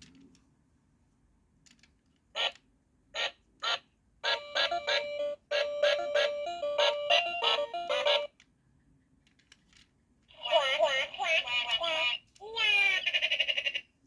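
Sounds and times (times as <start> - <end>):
tinny electronic melody: 4.2 - 8.3
toy short beep: 4.3 - 8.3.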